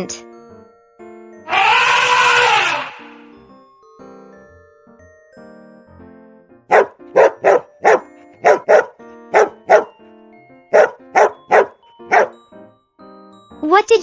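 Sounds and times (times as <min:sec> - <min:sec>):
soft background music: 0:00.0 - 0:01.5, 0:03.2 - 0:14.0
dog barking: 0:06.7 - 0:09.9, 0:10.7 - 0:12.4.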